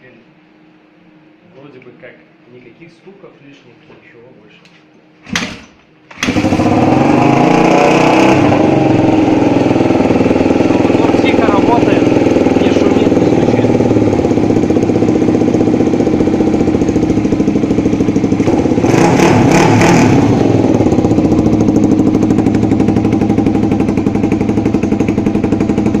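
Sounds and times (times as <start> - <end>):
motorcycle engine idling: 8.4 - 19.0, 20.1 - 26.0.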